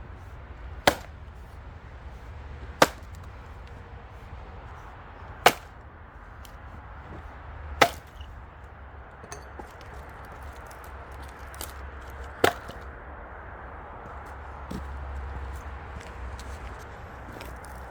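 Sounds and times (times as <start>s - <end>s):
axe chopping logs: 0.6s - 3.8s, 4.7s - 8.6s, 9.2s - 13.0s.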